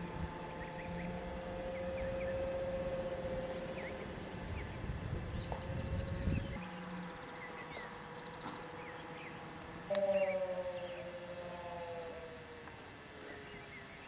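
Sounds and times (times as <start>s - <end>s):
wind rumble on microphone: 0.0s - 6.8s
birds chirping: 0.0s - 14.0s
model airplane motors whining: 0.0s - 14.0s.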